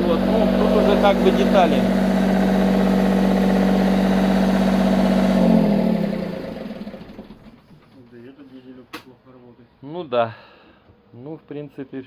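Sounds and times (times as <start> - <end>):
boat generator engine winding down: 0.0 - 7.7.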